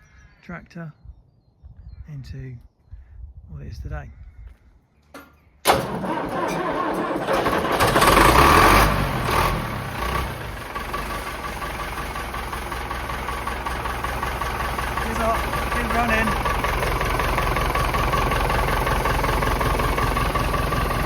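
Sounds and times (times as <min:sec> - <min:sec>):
diesel tractor engine starting: 0:05.6 - 0:21.0.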